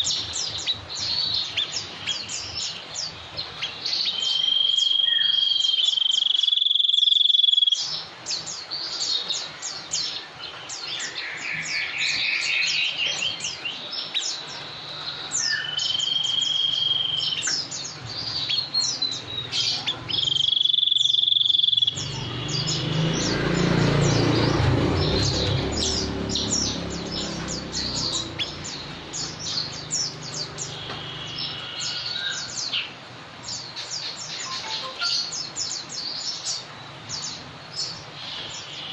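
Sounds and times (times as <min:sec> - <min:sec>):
bird trill: 0:00.0 - 0:38.9
birds chirping: 0:00.0 - 0:38.9
long whistled bird notes: 0:20.1 - 0:24.2.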